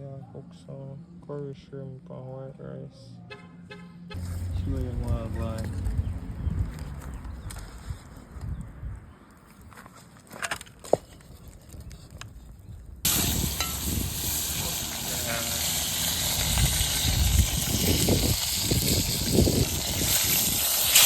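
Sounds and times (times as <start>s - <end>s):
low rumbles: 4.2s - 9.3s, 12.7s - 20.7s
hot oil sizzling: 13.1s - 21.0s.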